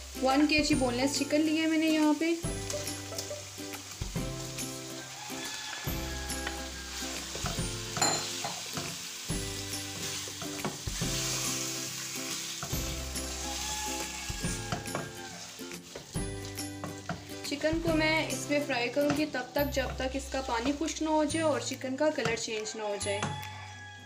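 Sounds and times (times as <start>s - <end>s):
chicken sizzling in oil: 0.0s - 21.8s
wooden spatula stirring: 13.4s - 17.6s.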